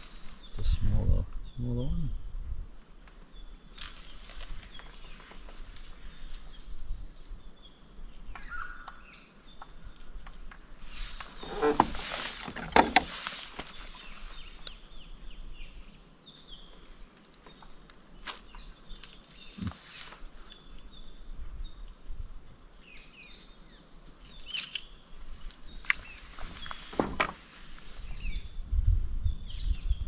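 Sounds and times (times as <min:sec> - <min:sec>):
rustling: 0:02.8 - 0:08.3, 0:09.7 - 0:15.1, 0:16.6 - 0:21.1, 0:24.1 - 0:28.3
birds chirping downward: 0:03.2 - 0:21.9.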